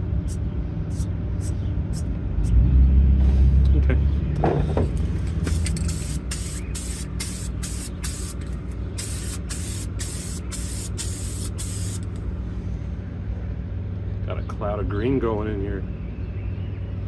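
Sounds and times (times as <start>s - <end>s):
spray paint hissing in bursts: 0.2s - 2.0s, 5.5s - 12.1s.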